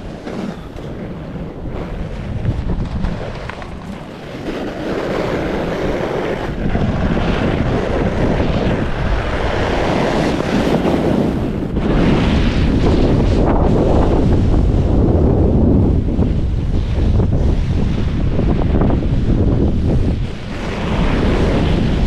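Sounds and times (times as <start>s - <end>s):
strong gusting wind on microphone: 0.0s - 22.0s.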